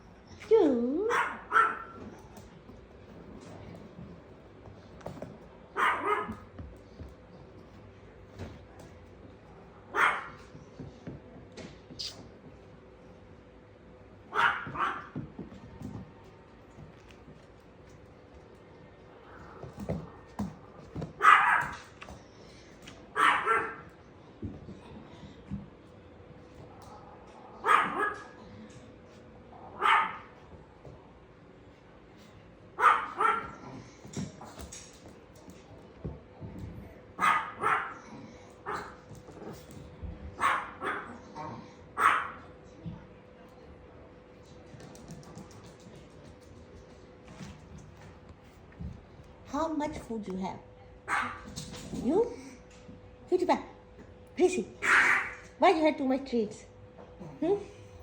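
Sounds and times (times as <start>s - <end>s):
dog barking: 1.1s - 2.0s, 5.8s - 6.5s, 9.9s - 10.4s, 14.3s - 15.2s, 21.2s - 21.9s, 23.2s - 23.9s, 27.6s - 28.4s, 29.8s - 30.3s, 32.8s - 33.6s, 37.2s - 38.0s, 38.6s - 39.0s, 40.4s - 41.2s, 42.0s - 42.4s, 51.1s - 51.5s, 54.8s - 55.5s.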